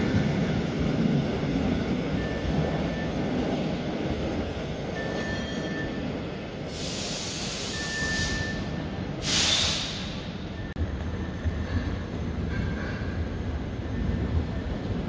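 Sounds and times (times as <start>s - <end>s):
train rumbling: 0.0s - 15.0s
hissing air bursts: 6.7s - 8.4s, 9.2s - 10.4s.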